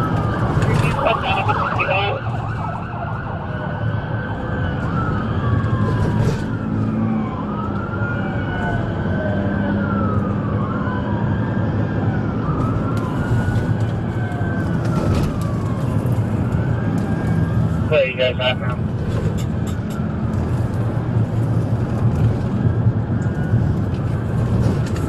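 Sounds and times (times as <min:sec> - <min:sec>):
engine and road rumble: 0:00.0 - 0:25.0
police sirens wailing: 0:00.0 - 0:25.0.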